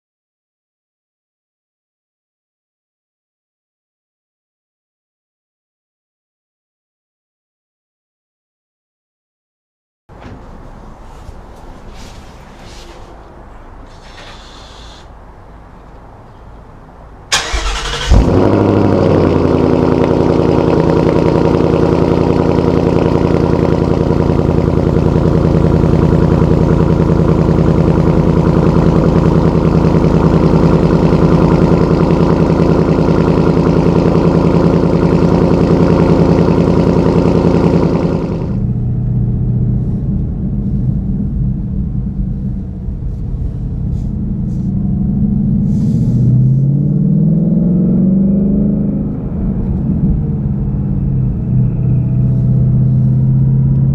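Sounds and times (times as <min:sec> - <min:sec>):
engine cranking: 0:17.3 - 0:18.7
car engine idling loudly: 0:17.3 - 0:46.7, 0:49.4 - 0:53.9.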